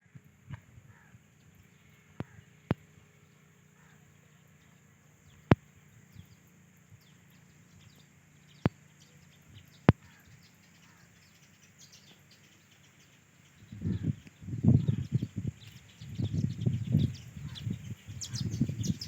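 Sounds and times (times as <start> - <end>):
steady high hiss: 0.1 - 19.0
faint bird chirps: 0.8 - 19.0
rough low rumbling bursts: 13.5 - 19.0.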